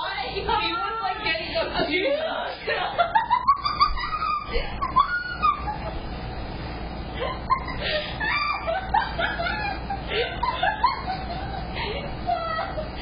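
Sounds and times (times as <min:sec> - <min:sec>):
people laughing and giggling: 0:02.6 - 0:06.2, 0:07.2 - 0:13.0.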